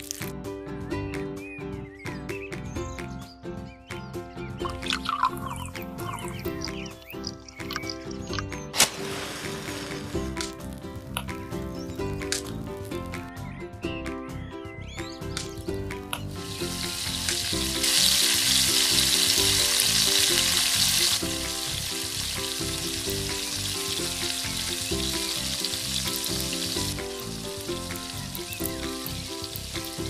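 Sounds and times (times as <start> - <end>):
background music: 0.0 - 30.0
potatoes sizzling in hot oil: 8.8 - 10.2, 16.3 - 30.0.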